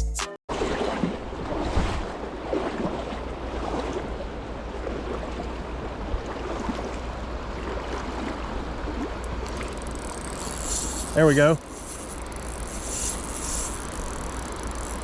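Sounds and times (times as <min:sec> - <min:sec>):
creek water rushing: 0:00.5 - 0:15.0
wind rumble on microphone: 0:00.9 - 0:11.0.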